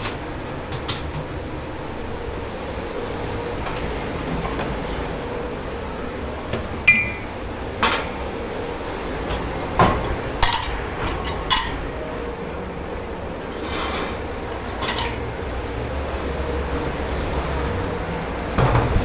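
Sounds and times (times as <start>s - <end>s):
dishes and cutlery clattering: 6.5s - 8.2s, 9.3s - 12.0s, 13.6s - 15.5s.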